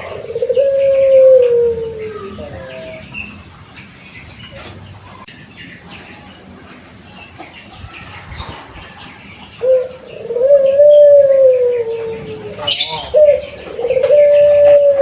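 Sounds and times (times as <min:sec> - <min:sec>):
dove cooing: 0:00.0 - 0:03.4, 0:09.6 - 0:15.0.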